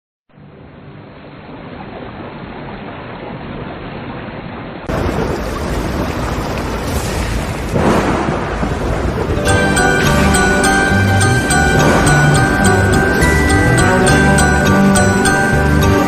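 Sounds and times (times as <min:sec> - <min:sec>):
thunder rumbling: 0:04.9 - 0:15.2
rain rushing: 0:04.9 - 0:16.0.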